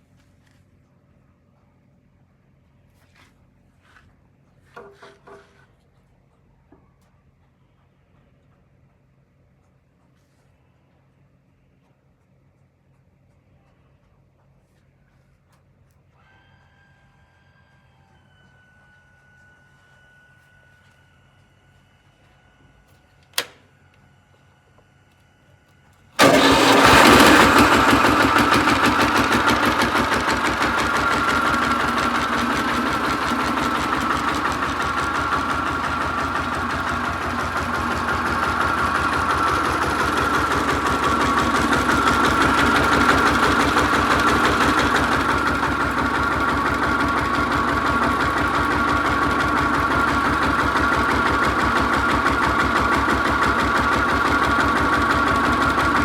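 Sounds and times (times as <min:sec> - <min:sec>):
tractor engine starting and running: 0:26.2 - 0:56.0.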